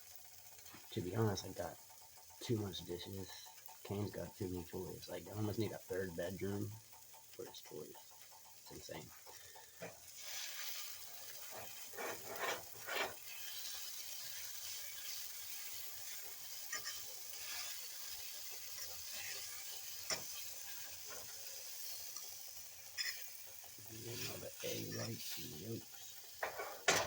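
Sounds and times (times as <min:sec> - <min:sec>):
food sizzling in a pan: 0:00.0 - 0:27.0
utensil scraping a pan: 0:09.1 - 0:27.0.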